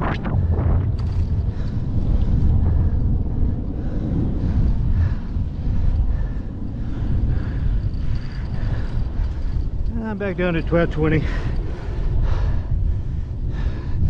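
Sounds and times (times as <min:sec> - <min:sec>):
bicycle tyres rumbling on road: 0:00.0 - 0:14.0
wind buffeting microphone: 0:00.0 - 0:14.0.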